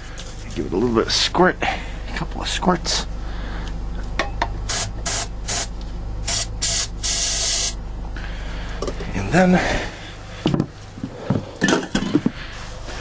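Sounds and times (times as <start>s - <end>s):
aerosol can spraying: 4.7s - 7.8s.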